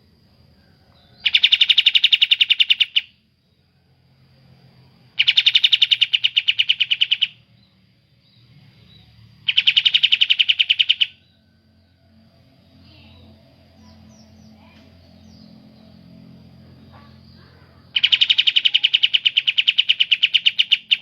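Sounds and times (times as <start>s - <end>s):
songbird rattling trills: 1.2s - 3.1s, 5.2s - 7.4s, 8.3s - 11.4s, 13.8s - 21.0s.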